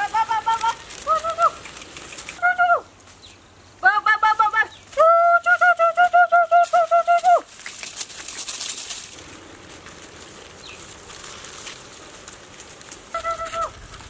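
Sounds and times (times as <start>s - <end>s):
soft rustling: 0.0s - 2.4s, 4.7s - 14.0s
bird calling high notes: 13.1s - 13.8s.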